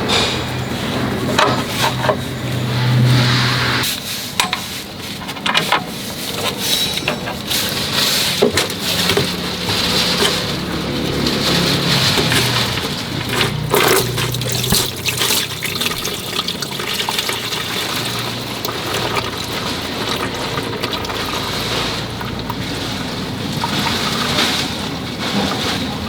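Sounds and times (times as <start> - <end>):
water rushing: 8.7 - 25.3.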